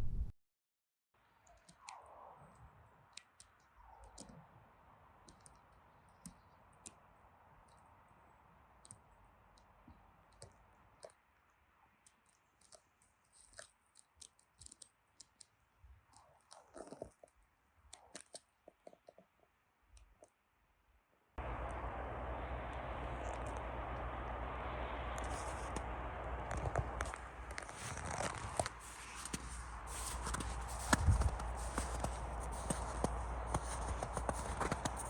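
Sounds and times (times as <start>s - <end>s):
high bird chips and ticks: 21.4s - 35.0s.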